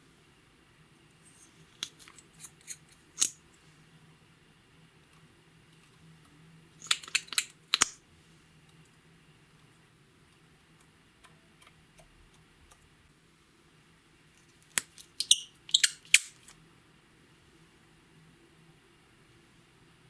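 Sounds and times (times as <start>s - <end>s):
slime clicking: 6.8s - 8.0s.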